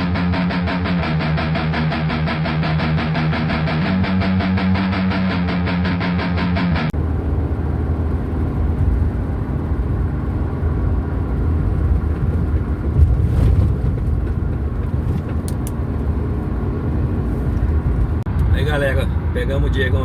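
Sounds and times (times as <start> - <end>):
guitar music: 0.0 - 11.6
car engine and road noise: 6.8 - 20.0.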